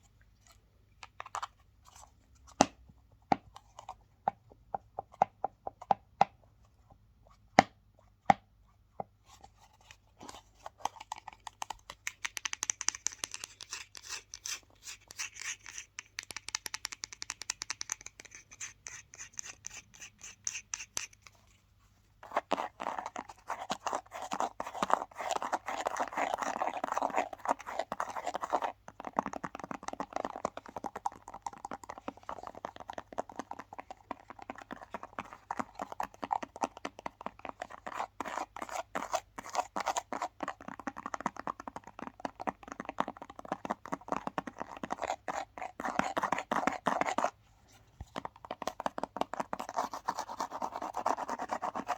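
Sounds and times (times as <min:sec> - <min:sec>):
sharp taps on objects: 0:12.0 - 0:14.4, 0:16.0 - 0:18.4.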